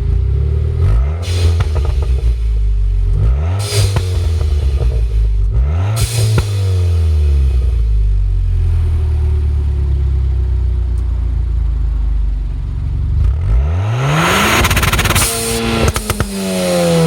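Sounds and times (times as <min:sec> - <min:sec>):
car engine revving: 0:00.0 - 0:09.8, 0:13.0 - 0:17.0
exhaust pops and crackles: 0:01.2 - 0:06.6, 0:14.4 - 0:17.0.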